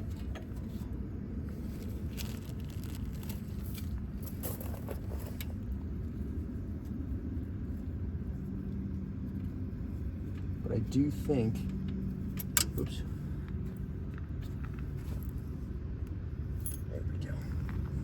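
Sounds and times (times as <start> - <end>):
steady low hum: 0.0 - 18.0
metal clinks and scrapes of tools: 16.5 - 17.8.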